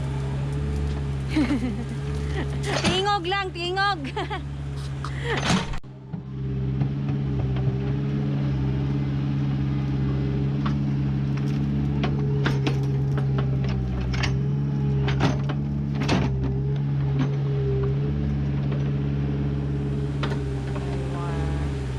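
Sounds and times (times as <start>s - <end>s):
diesel engine running: 0.0s - 21.9s
knocks and clanks of digger bucket: 10.6s - 19.0s.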